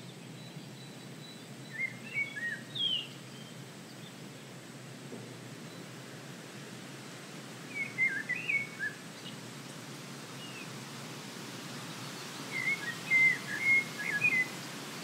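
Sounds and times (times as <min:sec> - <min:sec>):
steady background hiss: 0:00.0 - 0:15.0
songbird warbling: 0:12.5 - 0:14.6.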